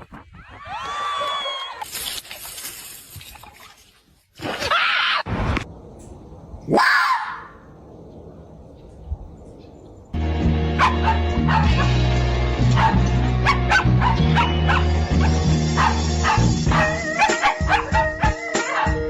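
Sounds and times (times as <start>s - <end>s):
music with heavy bass beat: 10.2s - 19.0s
dog barking and yipping: 10.8s - 12.0s, 12.7s - 19.0s.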